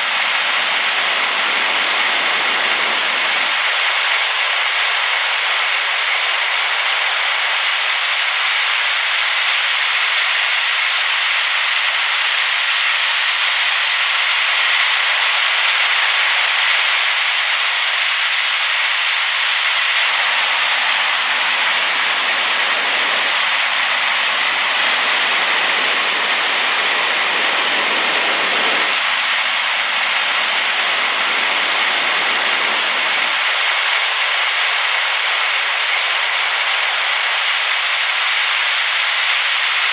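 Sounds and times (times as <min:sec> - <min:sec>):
waterfall rushing: 0:00.0 - 0:07.4, 0:20.0 - 0:39.5.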